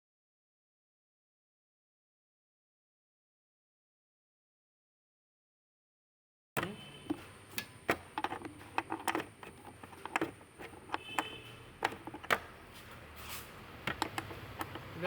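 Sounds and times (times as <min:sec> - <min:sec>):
metal spanner clicking on nut: 0:07.1 - 0:12.5, 0:13.9 - 0:15.0.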